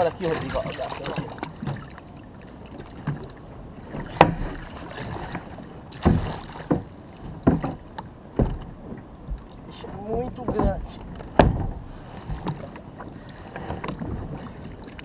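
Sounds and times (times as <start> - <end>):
water wash: 0.0 - 2.0, 4.0 - 7.8
wind: 0.0 - 15.0
gear knocking on kayak: 3.9 - 14.5.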